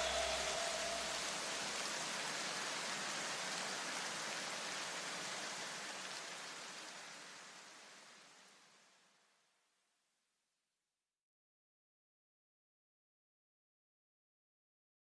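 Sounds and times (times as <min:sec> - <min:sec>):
steady hiss-like noise: 0:00.0 - 0:09.7.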